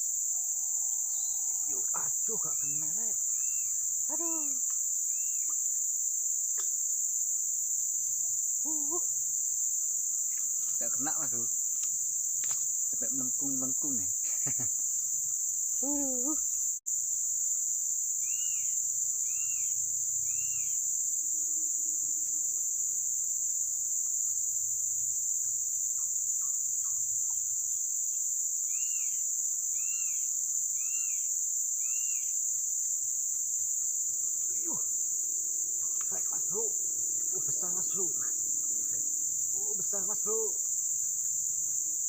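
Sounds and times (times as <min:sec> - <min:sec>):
insects shrilling: 0:00.0 - 0:42.0
bird chirping: 0:00.4 - 0:03.9.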